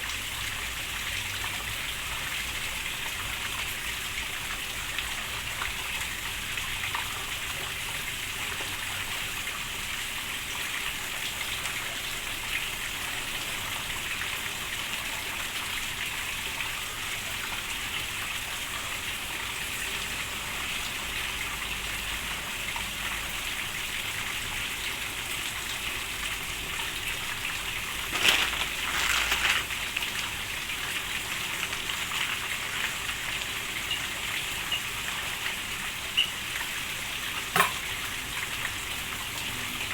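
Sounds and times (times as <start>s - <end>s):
steady rain falling: 25.6s - 36.6s.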